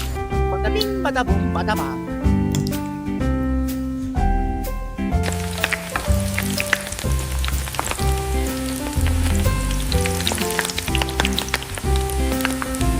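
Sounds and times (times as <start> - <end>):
background music with bass line: 0.0 - 12.9
heavy rain: 5.2 - 12.9.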